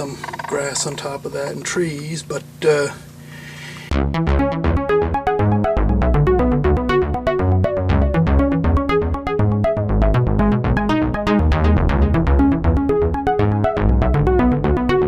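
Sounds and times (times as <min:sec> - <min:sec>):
fretless electric bass: 0:03.4 - 0:15.0
keyboards: 0:03.9 - 0:15.0.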